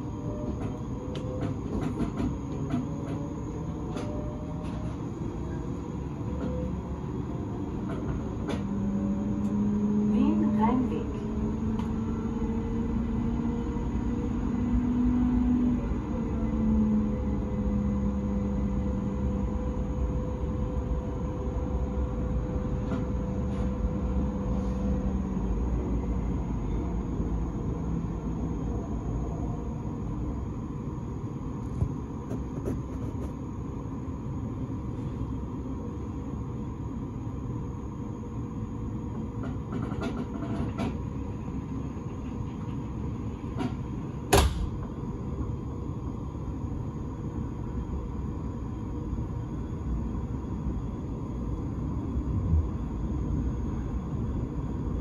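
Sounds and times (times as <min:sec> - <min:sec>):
train low rumble: 0:00.0 - 0:55.0
sharp clunk: 0:44.3 - 0:44.7.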